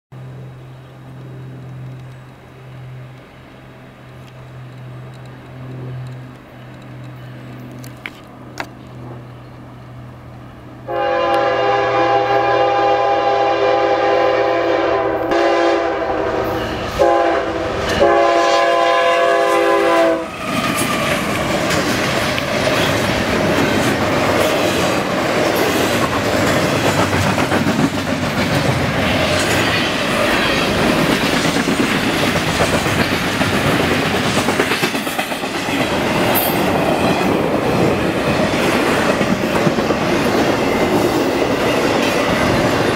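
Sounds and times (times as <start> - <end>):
freight cars rolling on rails: 0.2 - 10.8, 16.3 - 42.9
locomotive horn blasts: 10.8 - 20.4.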